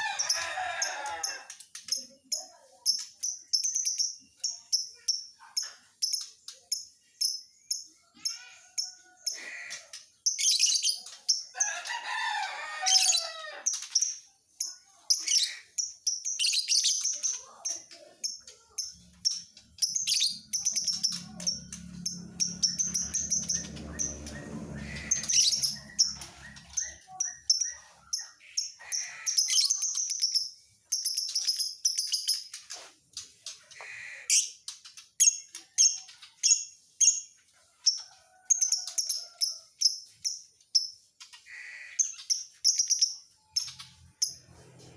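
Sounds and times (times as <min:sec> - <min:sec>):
lovebird chirping and twittering: 0:01.8 - 0:08.5, 0:10.2 - 0:11.5, 0:12.9 - 0:32.6, 0:34.3 - 0:38.0, 0:42.0 - 0:44.5.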